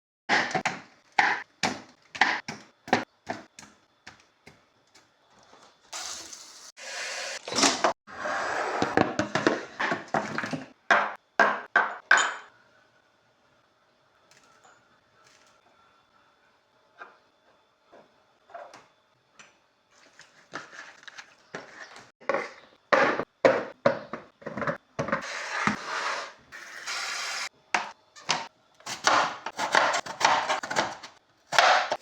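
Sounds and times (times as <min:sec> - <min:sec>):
knife chopping on wooden board: 0:27.8 - 0:32.0.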